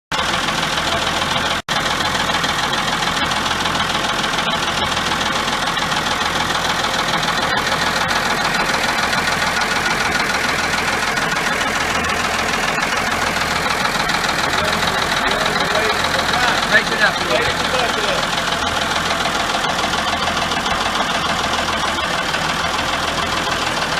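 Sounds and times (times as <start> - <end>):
tractor diesel engine idling: 0.1 - 23.9.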